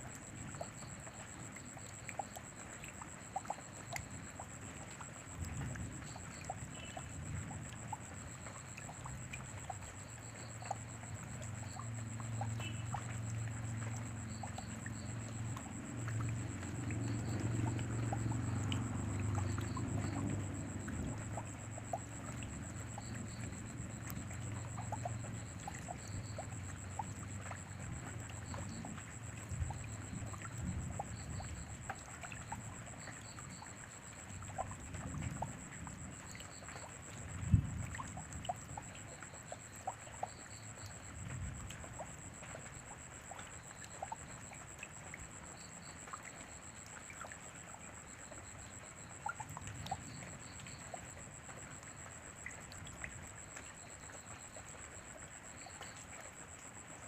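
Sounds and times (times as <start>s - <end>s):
steady rain: 0.0s - 57.0s
water trickling: 0.0s - 57.0s.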